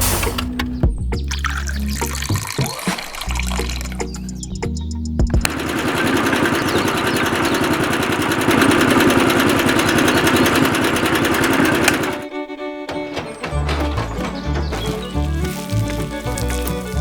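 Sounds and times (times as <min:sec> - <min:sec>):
small motor buzzing rattle: 0:05.4 - 0:17.0.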